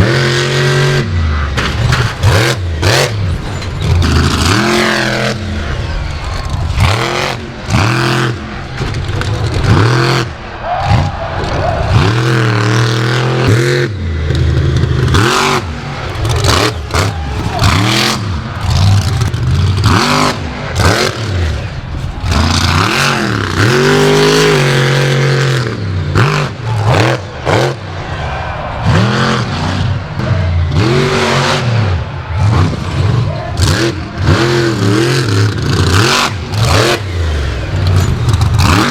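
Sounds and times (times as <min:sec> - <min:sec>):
truck engine revving: 0:00.0 - 0:38.9
sharp knocks and bangs: 0:01.6 - 0:05.4.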